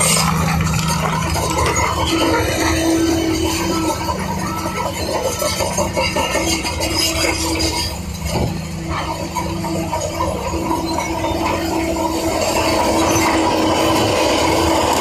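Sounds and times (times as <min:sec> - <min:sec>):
large engine rumbling: 0:00.0 - 0:15.0.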